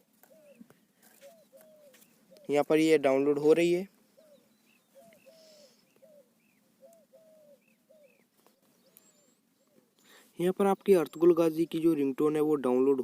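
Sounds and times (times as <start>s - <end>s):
faint bird calls: 0.1s - 2.7s, 3.9s - 10.4s.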